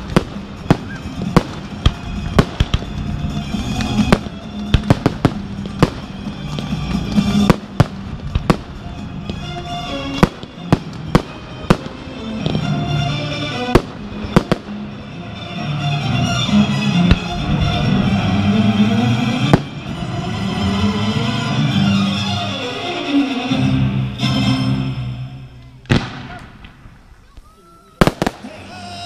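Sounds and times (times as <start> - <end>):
fireworks bangs and pops: 0.0 - 12.8, 13.7 - 14.8, 19.4 - 19.9, 25.8 - 28.7
music playing: 0.0 - 26.4, 28.0 - 29.0.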